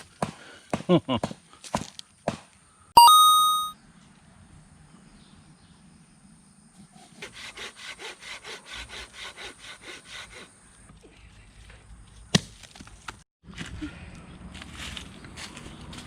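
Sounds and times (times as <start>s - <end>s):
hand saw cutting wood: 6.8s - 10.6s
rough wood-working noise: 6.8s - 11.0s.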